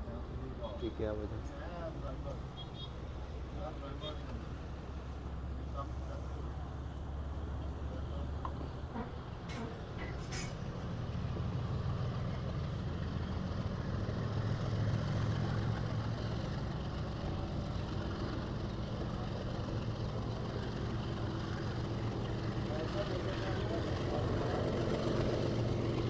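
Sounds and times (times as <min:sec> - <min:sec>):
train rumbling inside carriage: 0:06.7 - 0:12.9, 0:13.7 - 0:26.0.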